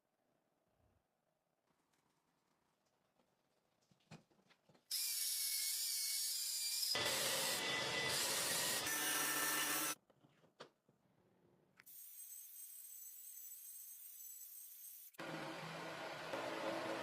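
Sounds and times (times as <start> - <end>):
abrasive power tool on steel: 4.9 - 10.0.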